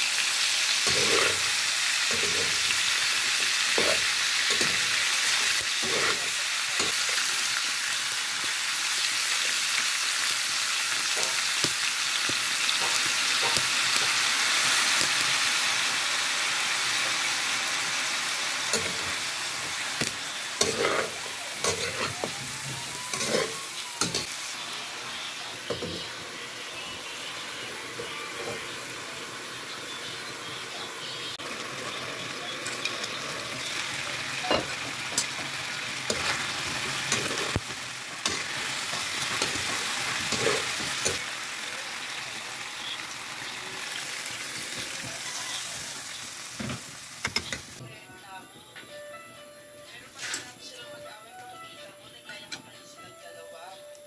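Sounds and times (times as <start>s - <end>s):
chicken feet sizzling in oil: 0.0s - 47.8s
metal spatula scraping wok: 0.8s - 2.8s, 3.6s - 7.0s, 18.6s - 24.4s, 36.1s - 37.6s, 38.2s - 41.2s.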